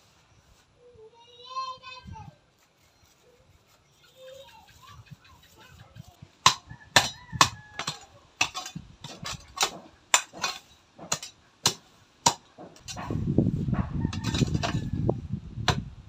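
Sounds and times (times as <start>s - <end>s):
hammer strikes: 6.4s - 13.2s.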